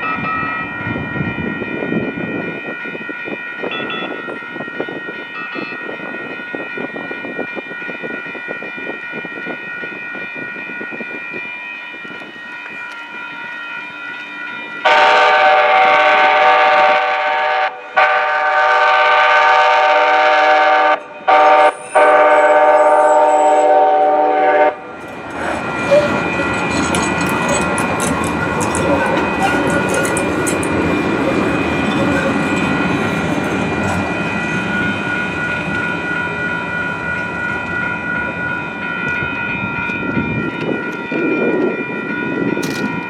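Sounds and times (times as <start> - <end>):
train rumbling on rails: 0.0 - 43.0
train horn: 14.8 - 24.9.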